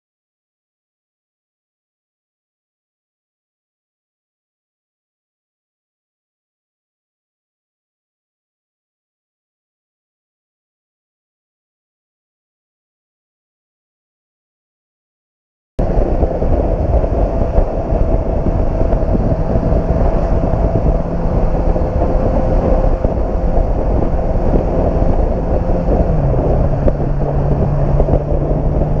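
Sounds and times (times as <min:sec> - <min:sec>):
motorcycle engine running: 0:15.8 - 0:29.0
wind noise on microphone: 0:15.8 - 0:29.0.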